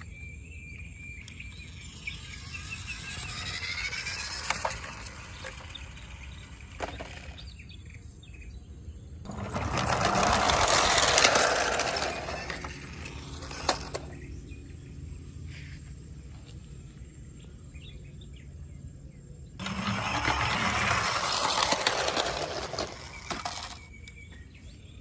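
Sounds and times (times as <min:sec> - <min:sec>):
bird chirps: 0:00.0 - 0:09.9, 0:23.0 - 0:25.0.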